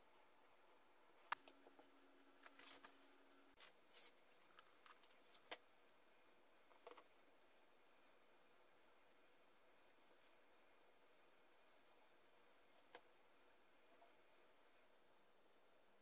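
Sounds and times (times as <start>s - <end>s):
soft scraping rustles: 2.4s - 5.4s.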